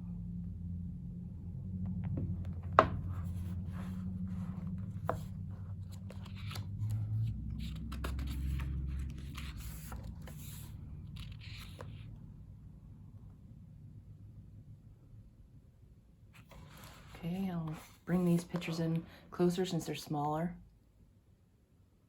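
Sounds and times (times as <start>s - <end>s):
low hum: 0.0s - 15.8s
photobook pages turning: 2.4s - 12.1s, 16.4s - 18.8s.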